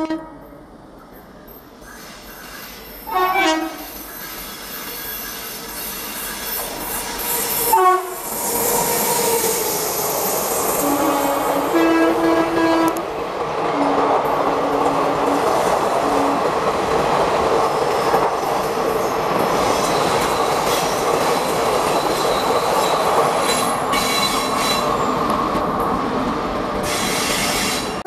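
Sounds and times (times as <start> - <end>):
train wheels rumbling on rail: 0.0 - 28.0
high wheel squeal: 1.9 - 11.8, 21.8 - 25.2.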